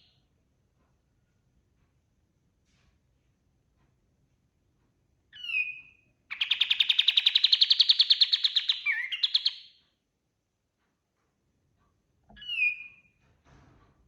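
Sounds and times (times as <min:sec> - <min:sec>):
bulbul singing trill: 0:06.3 - 0:09.7.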